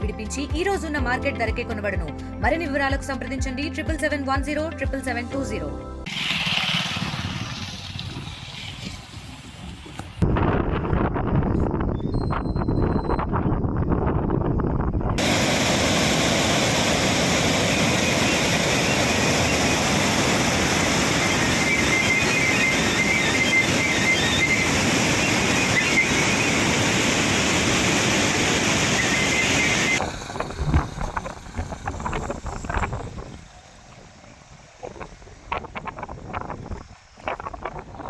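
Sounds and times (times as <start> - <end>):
wind on microphone: 6.0 - 38.0
heavy floodwater rushing: 15.2 - 34.7.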